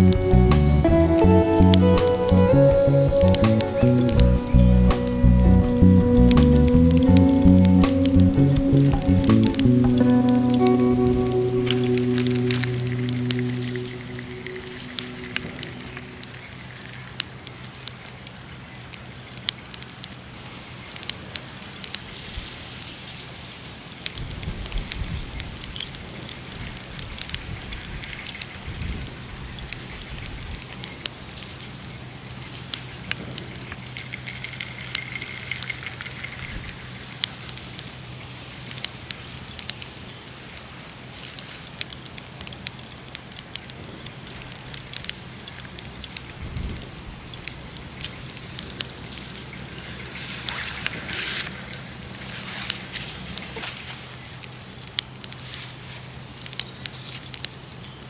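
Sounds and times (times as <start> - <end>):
dull low thumps: 0.0 - 10.3
campfire crackling and popping: 0.0 - 58.0.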